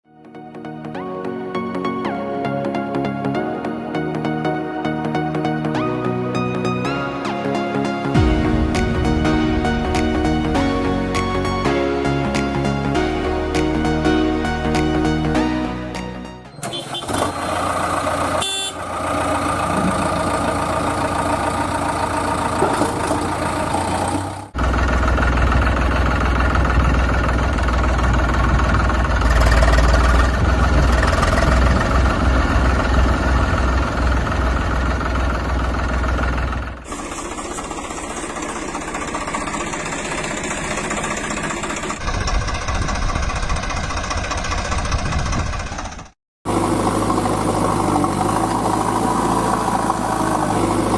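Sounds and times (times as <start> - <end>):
diesel engines running: 5.4 - 50.9.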